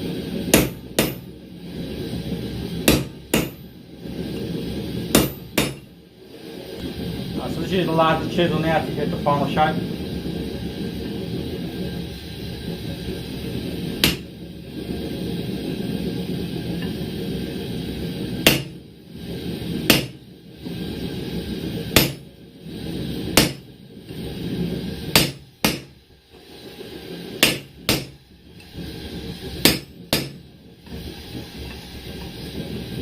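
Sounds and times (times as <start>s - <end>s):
hammer striking chisel on steel: 0.5s - 1.3s, 2.9s - 3.6s, 5.1s - 5.9s, 14.0s - 14.3s, 18.4s - 18.7s, 19.9s - 20.2s, 22.0s - 22.2s, 23.4s - 23.6s, 25.2s - 25.9s, 27.4s - 28.2s, 29.6s - 30.4s.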